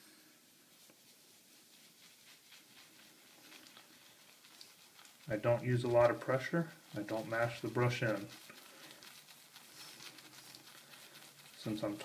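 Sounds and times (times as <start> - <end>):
shaving brush scratching on soap: 0.8 - 12.0.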